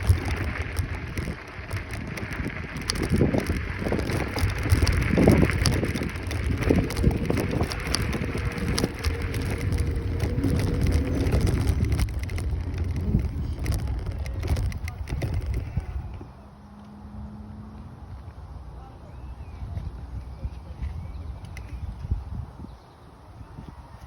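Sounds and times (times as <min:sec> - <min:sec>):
small rattling clicks: 0:00.0 - 0:16.2
wind buffeting microphone: 0:00.0 - 0:16.3, 0:19.4 - 0:24.0
low road rumble: 0:00.0 - 0:24.0.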